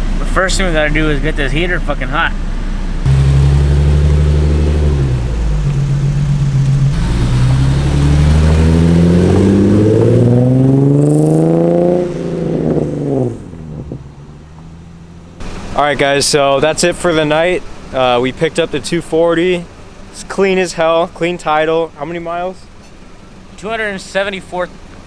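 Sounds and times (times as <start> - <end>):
car engine revving: 2.3 - 20.2.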